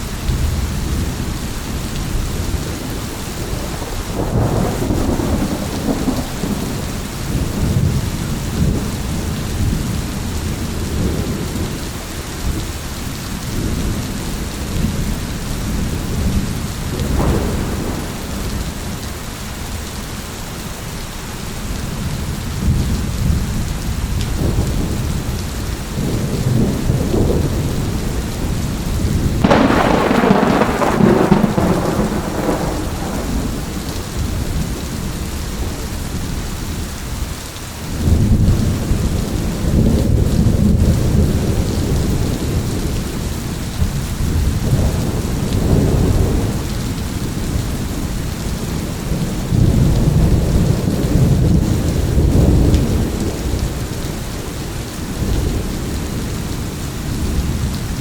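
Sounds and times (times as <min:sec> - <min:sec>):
rolling thunder: 0:00.0 - 0:12.7, 0:13.4 - 0:19.6, 0:22.0 - 0:36.6, 0:37.8 - 0:58.0
heavy rain: 0:00.0 - 0:58.0
loud thunderclap: 0:02.4 - 0:09.9, 0:15.7 - 0:18.9, 0:25.9 - 0:34.8, 0:43.8 - 0:54.2
thunder crack: 0:03.4 - 0:08.0, 0:17.0 - 0:18.9, 0:29.2 - 0:34.7.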